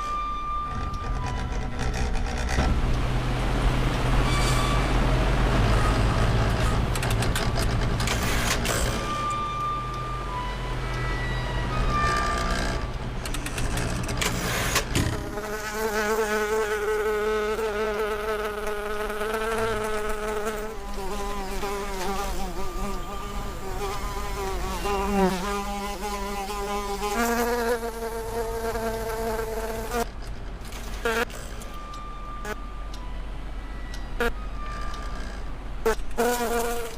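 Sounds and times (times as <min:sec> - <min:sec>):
insect buzzing: 0:15.2 - 0:30.0, 0:35.8 - 0:36.9.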